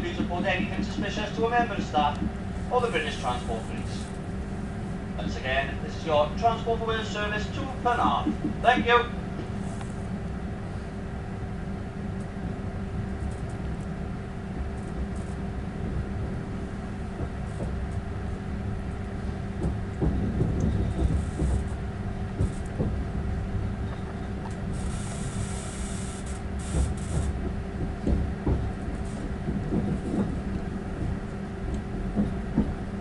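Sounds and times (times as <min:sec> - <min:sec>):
train engine hum: 0:00.0 - 0:33.0
wheels clicking over rails: 0:23.9 - 0:32.8.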